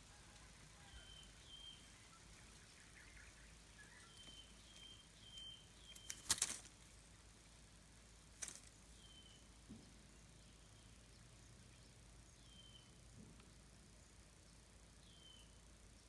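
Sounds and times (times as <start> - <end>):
crackling rustles: 1.8 - 7.4, 8.0 - 9.0.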